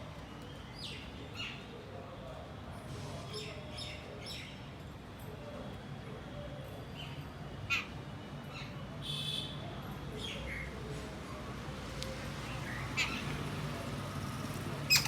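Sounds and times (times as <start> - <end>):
birds chirping: 12.5 - 13.6.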